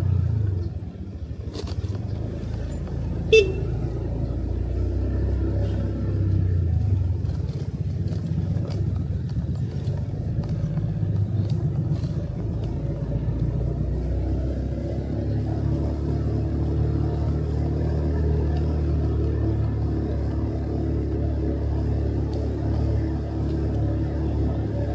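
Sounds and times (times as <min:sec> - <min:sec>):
motorcycle engine running: 0:00.0 - 0:24.9.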